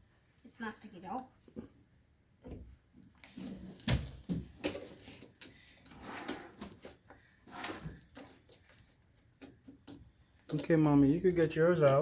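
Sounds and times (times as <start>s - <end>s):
slime squelching: 2.9s - 12.0s.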